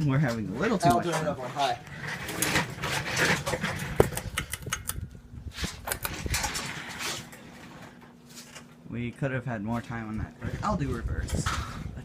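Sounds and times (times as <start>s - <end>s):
ceiling fan motor hum: 0.0s - 12.0s
fan air rushing: 0.0s - 12.0s
fan clicks: 3.7s - 7.4s.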